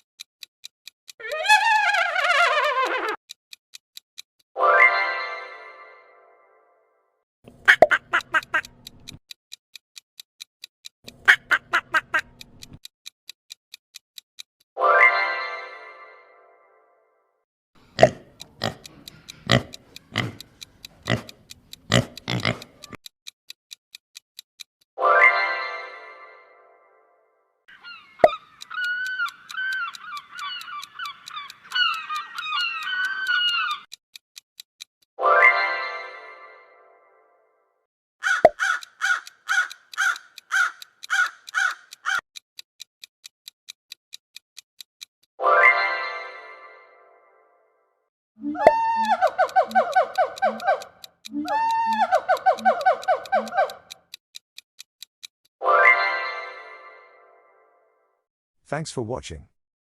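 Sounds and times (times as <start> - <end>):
clock ticking: 0.0 - 4.5, 7.4 - 14.7, 17.8 - 24.9, 27.7 - 35.1, 38.2 - 45.4, 48.4 - 55.6
short animal grunts: 18.0 - 20.5, 21.1 - 21.3
crow cawing: 27.7 - 33.8, 38.2 - 42.2.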